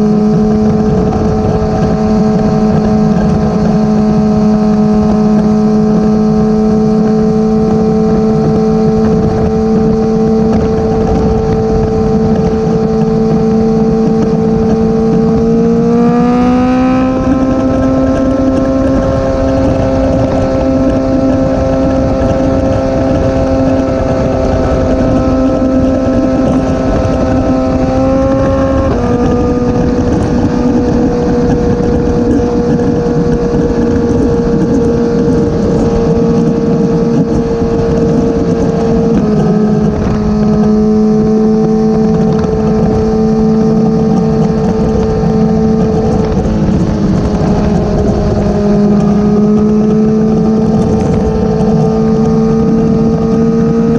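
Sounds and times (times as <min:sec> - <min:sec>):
motorcycle engine cruising: 0:00.0 - 0:53.9
wind rushing over microphone: 0:00.0 - 0:53.9.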